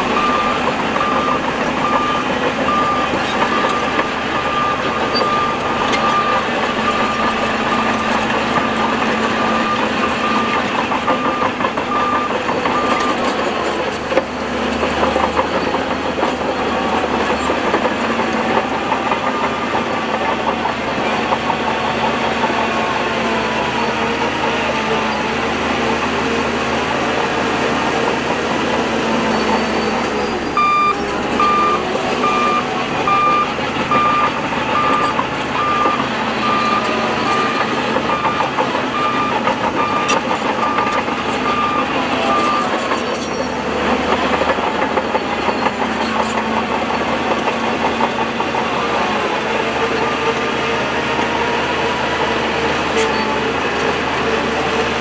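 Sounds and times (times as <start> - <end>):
heavy machinery running: 0.0 - 55.0
reverse alarm beeping: 0.1 - 8.0, 9.5 - 13.2, 29.4 - 43.0.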